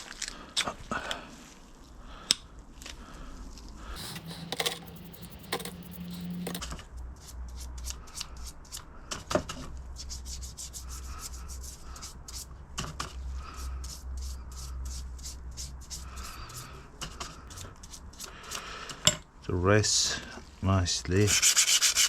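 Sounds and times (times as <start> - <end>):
sandpaper rubbing on metal: 4.0 - 6.6, 21.2 - 22.0.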